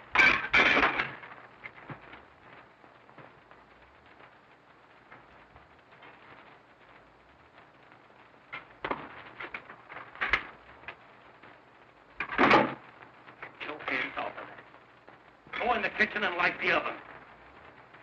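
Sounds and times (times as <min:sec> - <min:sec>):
film soundtrack hiss: 0:00.0 - 0:18.0
sharp knocks and clatters: 0:00.1 - 0:03.4, 0:08.5 - 0:11.0, 0:12.2 - 0:13.6.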